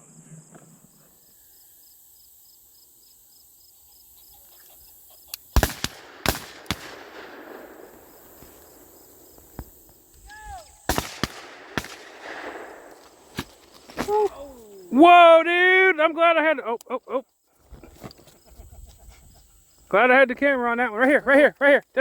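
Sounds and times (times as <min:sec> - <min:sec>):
insect chirping: 0:00.0 - 0:22.0
shotgun shots echoing: 0:05.5 - 0:10.1, 0:10.8 - 0:14.2.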